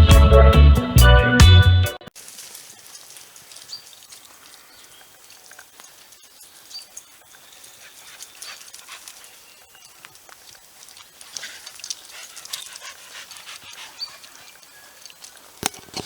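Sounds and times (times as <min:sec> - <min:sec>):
dog panting: 0:07.8 - 0:09.4, 0:11.2 - 0:15.1
light ticks: 0:09.8 - 0:15.4.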